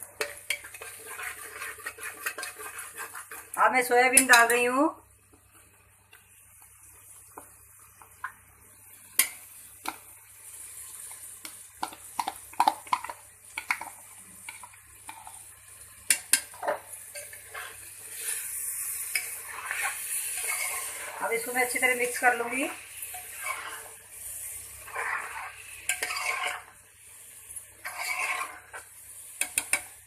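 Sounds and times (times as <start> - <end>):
frying sizzle: 0.0 - 30.0
metal spoon scraping pot: 0.2 - 4.5, 19.1 - 21.5, 23.1 - 23.9, 24.9 - 26.8, 27.8 - 29.9.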